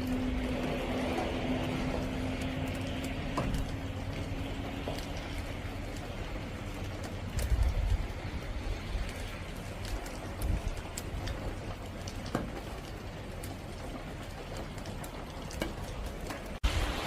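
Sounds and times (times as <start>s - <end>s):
rain hiss: 0.0s - 17.0s.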